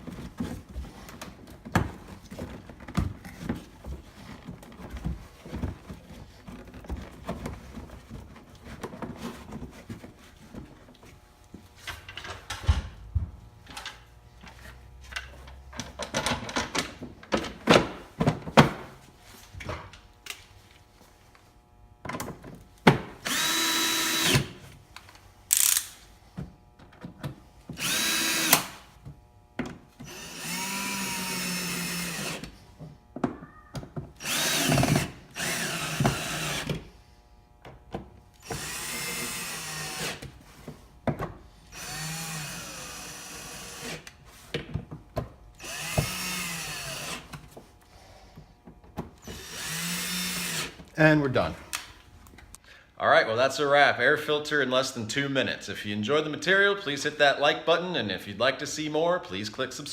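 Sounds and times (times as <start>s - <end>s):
cordless drill whining: 23.2s - 24.6s, 25.5s - 26.0s, 27.8s - 28.9s, 30.0s - 32.6s, 34.2s - 36.8s, 38.4s - 40.3s, 41.7s - 44.2s, 45.6s - 47.3s, 49.2s - 50.8s.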